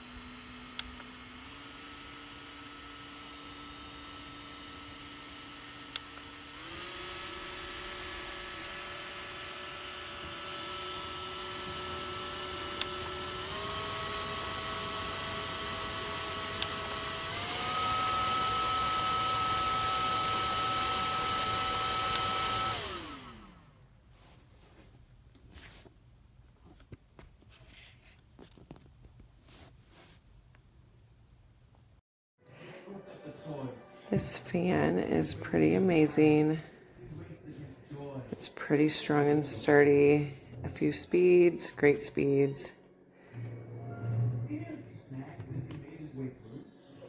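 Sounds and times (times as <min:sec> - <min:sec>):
small fan motor whining: 0:00.0 - 0:23.9.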